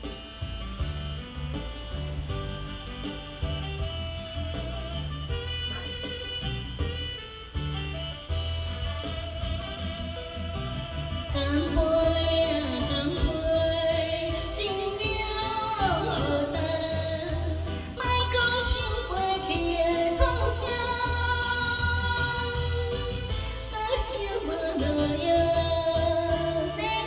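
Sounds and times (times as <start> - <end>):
instrumental backing with low beat: 0.0 - 27.0
person singing: 9.0 - 27.0.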